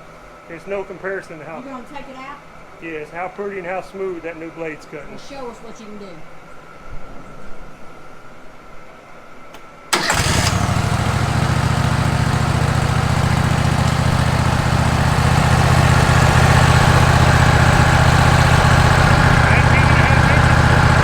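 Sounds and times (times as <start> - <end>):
sawmill engine running: 9.9 - 21.0.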